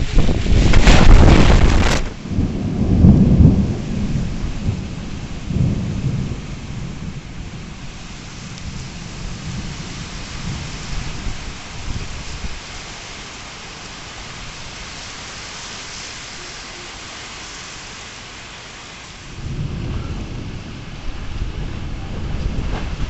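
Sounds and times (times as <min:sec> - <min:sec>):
thunder rumbling: 0:00.0 - 0:12.5, 0:19.3 - 0:23.0
steady rain falling: 0:00.0 - 0:23.0.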